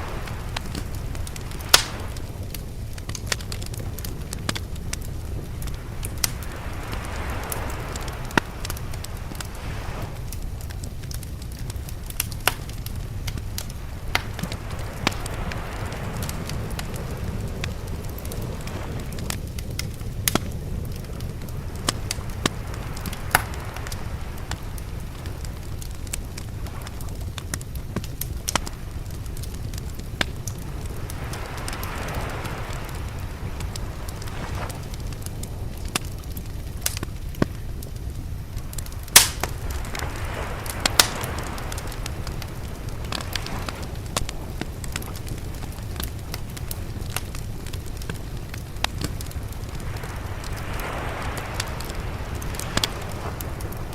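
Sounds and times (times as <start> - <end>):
sea waves rumbling: 0.0 - 53.9
wood fire crackling and popping: 0.0 - 53.9.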